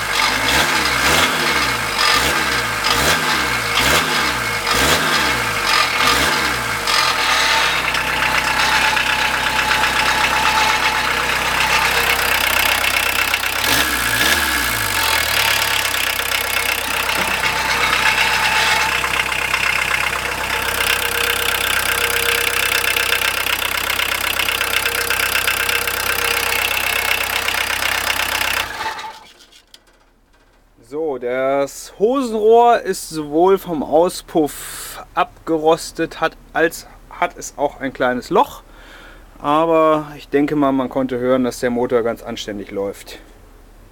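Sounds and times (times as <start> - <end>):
diesel engine idling and revving: 0.0 - 30.5.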